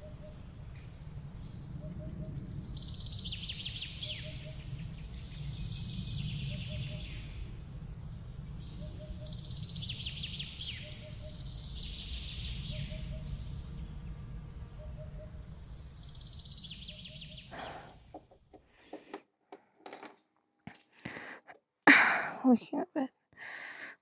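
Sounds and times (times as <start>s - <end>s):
steady low rumble: 0.0s - 18.1s
birds trilling: 8.7s - 18.3s.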